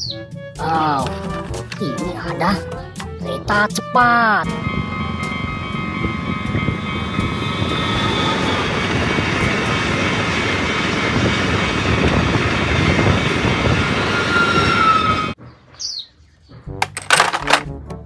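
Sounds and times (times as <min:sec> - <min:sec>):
high steady whine: 0:04.4 - 0:11.7
train wheels rumbling on rail: 0:04.4 - 0:15.4.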